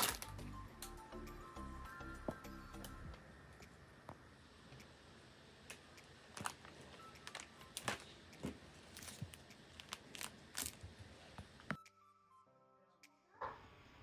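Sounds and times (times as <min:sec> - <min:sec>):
steady background hiss: 0:00.0 - 0:11.7.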